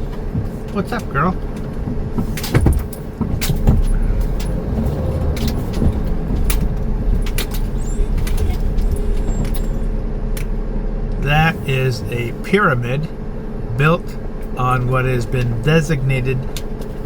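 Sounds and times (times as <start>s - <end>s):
interior rattles and knocks: 0.0s - 11.2s
engine and road rumble: 0.0s - 17.0s.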